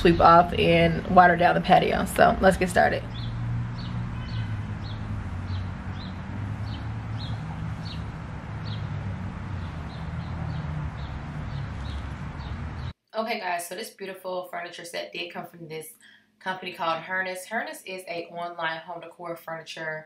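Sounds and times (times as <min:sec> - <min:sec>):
steady low rumble: 0:00.0 - 0:12.9
bird chirping: 0:02.4 - 0:12.9.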